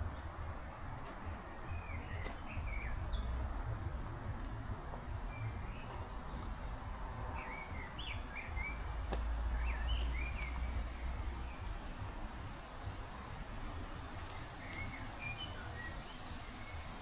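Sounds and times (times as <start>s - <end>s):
wind rumble on microphone: 0.0s - 17.0s
heavy rain hiss: 8.8s - 17.0s
sharp tick: 9.1s - 9.4s.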